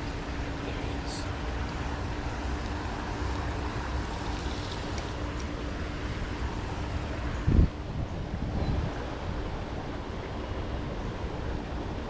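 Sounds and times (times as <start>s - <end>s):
river water rushing: 0.0s - 7.9s
wind buffeting microphone: 0.0s - 12.0s.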